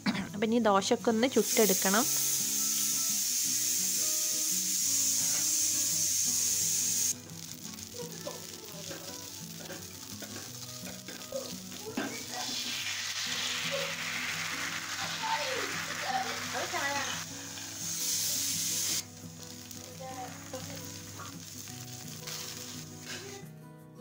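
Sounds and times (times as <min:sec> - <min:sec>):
batter sizzling on a pan: 0:01.3 - 0:23.4
loud steady hiss: 0:01.4 - 0:23.0
scraping on a hot pan: 0:08.5 - 0:23.4.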